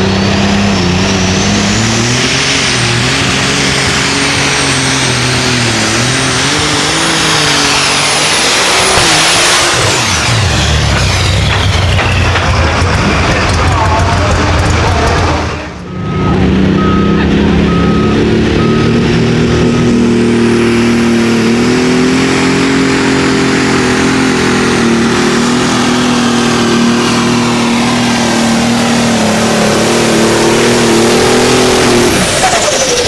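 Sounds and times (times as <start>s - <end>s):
tractor engine running: 0.0s - 33.0s
short electronic beeps: 15.8s - 20.2s.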